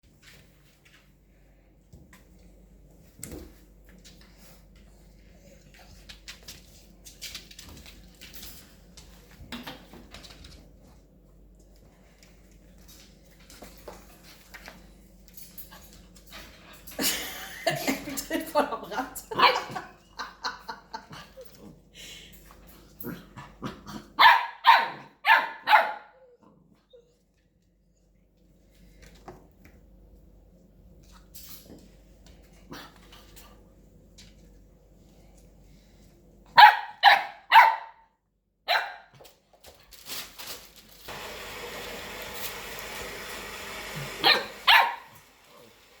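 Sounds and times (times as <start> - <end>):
dog barking: 24.2 - 26.2, 36.6 - 38.0, 38.7 - 39.1, 44.2 - 45.1.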